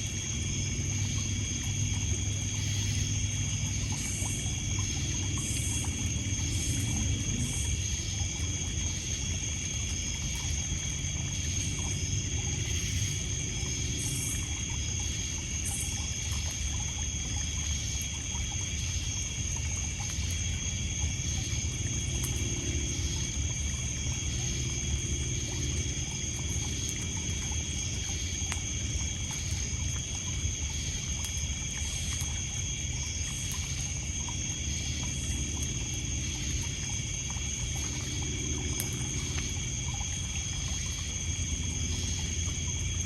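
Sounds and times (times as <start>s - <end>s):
crickets and insects trilling: 0.0s - 43.0s
water lapping on pebbles: 0.0s - 43.0s
campfire crackle: 18.0s - 43.0s.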